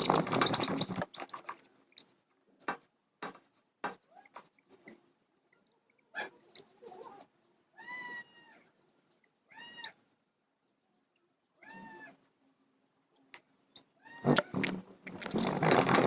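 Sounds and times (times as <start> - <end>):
rustles: 0.0 - 2.2, 14.2 - 16.0.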